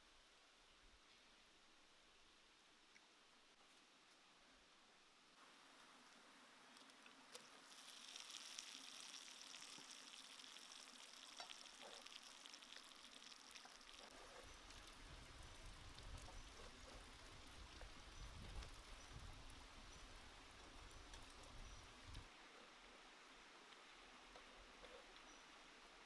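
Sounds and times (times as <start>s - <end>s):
food sizzling in hot oil: 7.4s - 15.7s.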